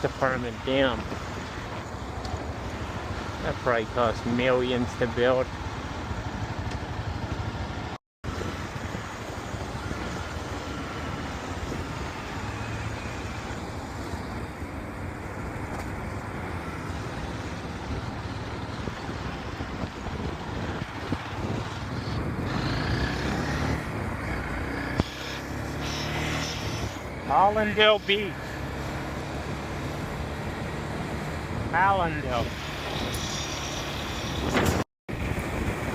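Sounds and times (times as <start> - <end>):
surrounding traffic: 0.0 - 35.9
wind noise: 8.3 - 35.9.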